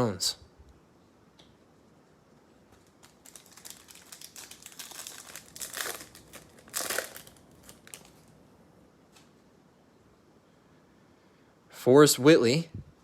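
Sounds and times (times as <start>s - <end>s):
wrapper crinkling and tearing: 2.8s - 8.3s.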